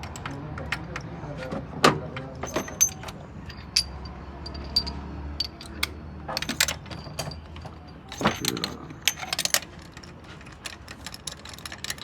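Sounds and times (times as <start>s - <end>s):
metal hand tools clinking: 2.4s - 12.0s.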